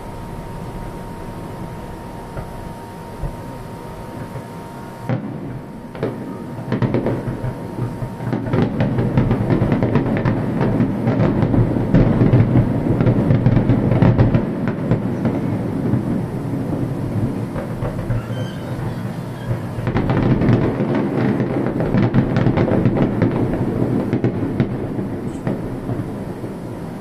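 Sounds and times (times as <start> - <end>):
low rumble: 0.0 - 5.9
fireworks bangs and crackle: 0.0 - 27.0.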